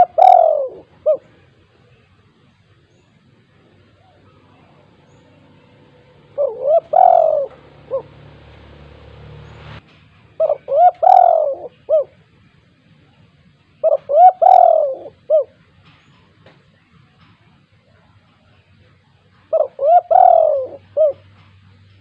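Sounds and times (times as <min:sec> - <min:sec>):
dove cooing: 0:00.0 - 0:01.6, 0:03.8 - 0:09.8, 0:10.4 - 0:12.2, 0:13.8 - 0:15.6, 0:19.5 - 0:21.4.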